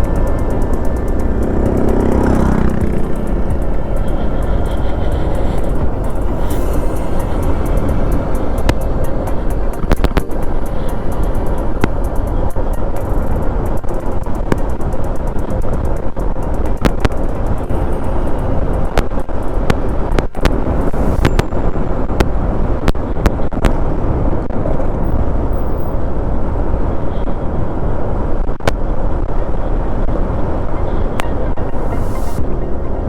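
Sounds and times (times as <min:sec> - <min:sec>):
motorcycle engine: 0:00.0 - 0:21.6
wind rush: 0:00.0 - 0:33.0.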